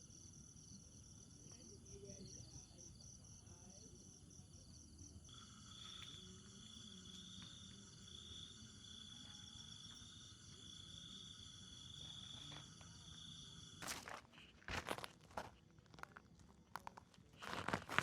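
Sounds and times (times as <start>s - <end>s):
lower-pitched insect trill: 4.3s - 13.9s
insects trilling: 4.6s - 14.7s.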